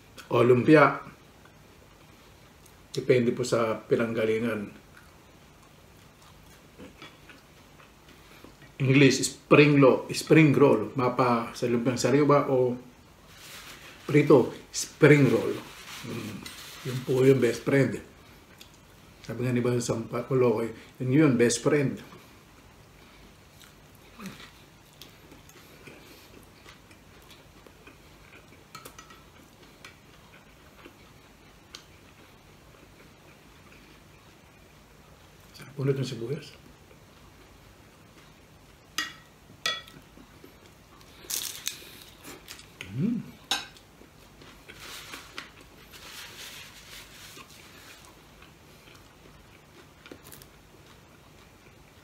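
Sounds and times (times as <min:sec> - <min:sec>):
quiet chewing: 0:04.8 - 0:08.8, 0:22.0 - 0:35.6, 0:39.9 - 0:52.0.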